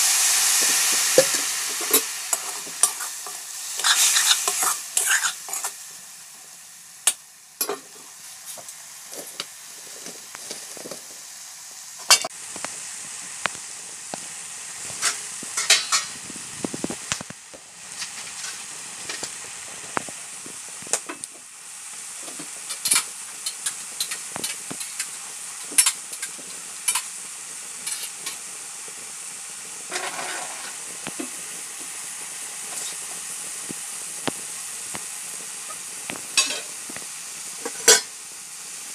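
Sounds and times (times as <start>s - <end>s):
mushrooms sizzling in a wok: 0.0s - 38.9s
spatula scraping and tapping a pan: 1.2s - 5.8s, 29.9s - 31.3s.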